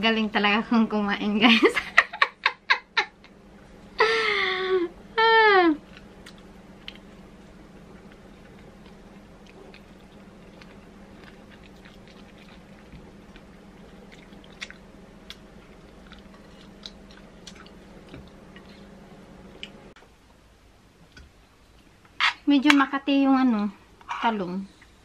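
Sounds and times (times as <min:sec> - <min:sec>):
steady low hum: 0:00.0 - 0:25.0
person chewing food: 0:05.8 - 0:20.0.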